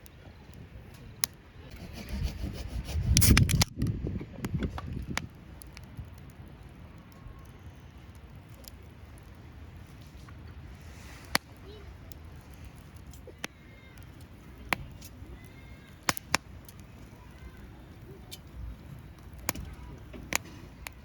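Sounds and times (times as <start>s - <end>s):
rough scraping and rubbing: 1.7s - 3.7s
sharp clicks: 3.1s - 6.3s.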